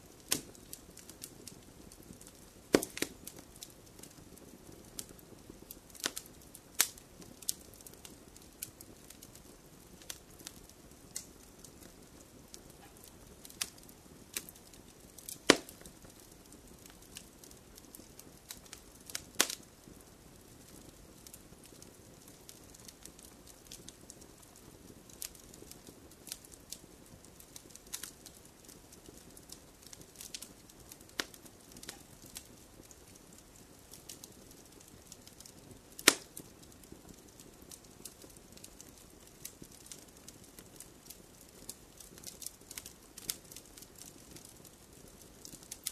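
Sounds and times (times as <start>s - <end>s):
loud fire pops: 0.0s - 45.9s
wood fire crackling: 0.0s - 45.9s.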